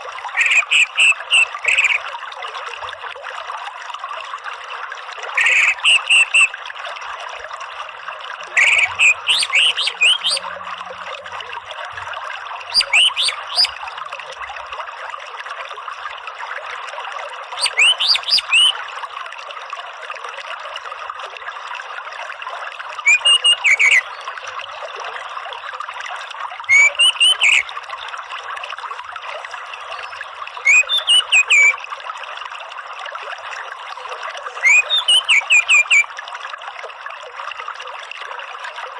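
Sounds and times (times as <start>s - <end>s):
running water trickling: 0.0s - 38.9s
thrush singing whistled notes: 0.4s - 2.0s, 5.4s - 6.6s, 8.6s - 10.5s, 12.7s - 13.8s, 17.6s - 18.8s, 23.0s - 24.2s, 26.7s - 27.7s, 29.8s - 31.8s, 34.5s - 36.1s.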